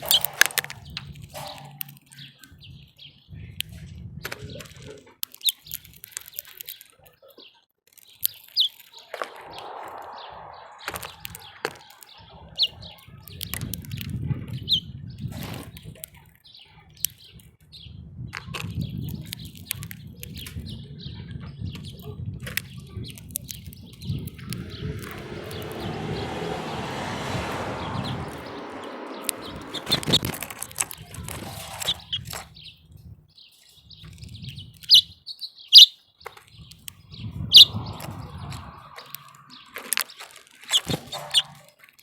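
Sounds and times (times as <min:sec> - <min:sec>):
rushing noise: 0:09.1 - 0:12.2, 0:24.2 - 0:31.1, 0:37.3 - 0:40.2.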